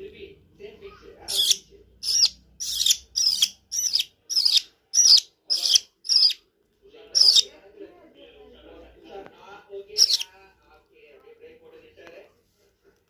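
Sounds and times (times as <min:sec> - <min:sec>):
budgerigar calling: 0:01.3 - 0:06.4, 0:07.2 - 0:07.5, 0:10.0 - 0:10.3.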